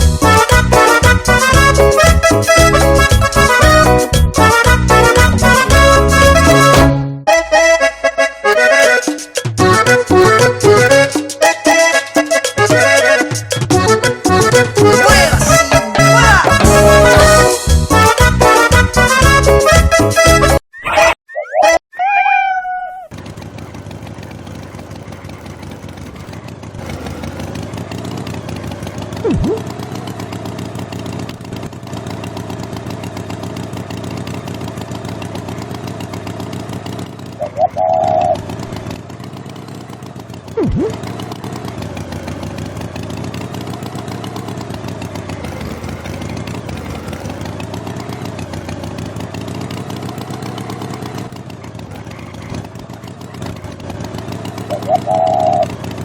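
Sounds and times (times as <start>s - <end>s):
short pulsing honk: 0.2s - 23.1s
quick falling tone: 20.8s - 23.1s, 40.6s - 41.0s
steady engine-like drone: 32.0s - 56.0s.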